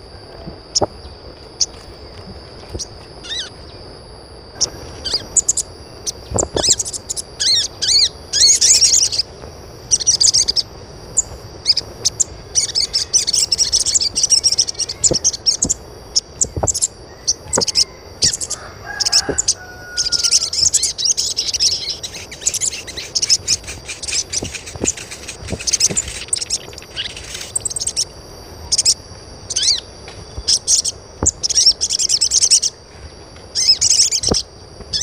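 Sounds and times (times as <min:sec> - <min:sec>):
small birds chirping: 0:00.0 - 0:03.9, 0:04.5 - 0:32.8, 0:33.5 - 0:35.0
high-pitched whine: 0:00.0 - 0:35.0.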